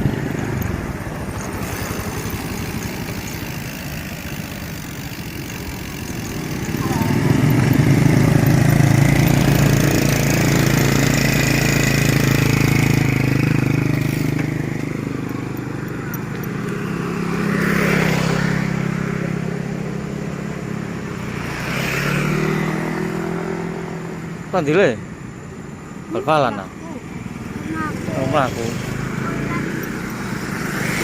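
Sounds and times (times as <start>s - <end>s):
vehicle engine running: 0.0s - 17.6s
vehicles passing: 0.0s - 31.0s.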